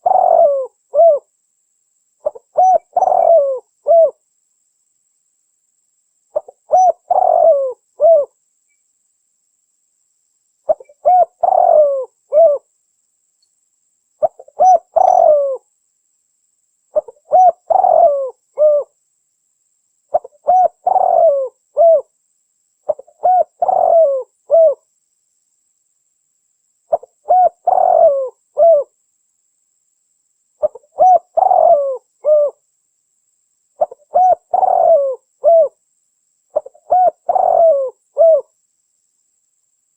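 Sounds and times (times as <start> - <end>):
dove cooing: 0.0 - 1.3, 2.2 - 4.2, 6.4 - 8.4, 10.7 - 12.7, 14.2 - 15.6, 16.9 - 19.0, 20.1 - 22.1, 22.9 - 24.8, 26.9 - 28.9, 30.6 - 32.6, 33.8 - 35.8, 36.5 - 38.5.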